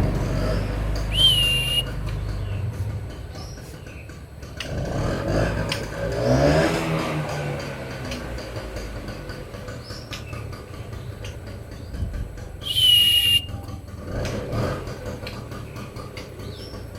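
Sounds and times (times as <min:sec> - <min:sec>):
bird whistled note: 0:01.1 - 0:02.0, 0:12.6 - 0:13.6
low steady rumble: 0:10.3 - 0:14.1.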